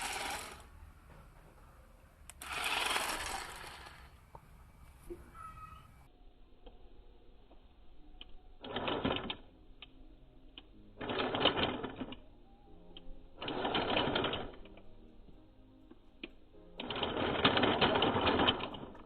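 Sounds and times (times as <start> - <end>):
toy electric motor whirring: 0.0 - 0.7, 2.3 - 4.3, 8.6 - 9.5, 11.0 - 12.3, 13.4 - 14.8, 16.8 - 19.0.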